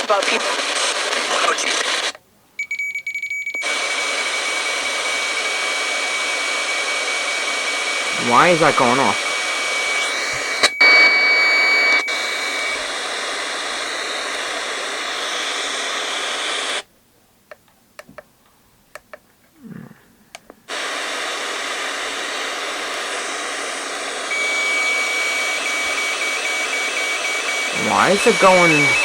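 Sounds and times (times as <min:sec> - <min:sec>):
radio static hiss: 0:00.0 - 0:02.2, 0:03.6 - 0:16.9, 0:20.7 - 0:29.0
high electronic tone: 0:24.3 - 0:29.0
rapid electronic beeping: 0:24.3 - 0:29.0.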